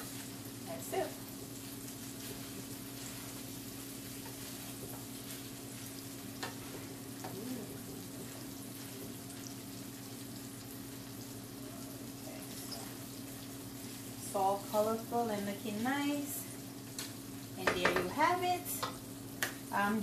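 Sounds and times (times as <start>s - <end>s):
rice sizzling in a wok: 0.0s - 20.0s
wooden spatula stirring: 1.4s - 9.3s.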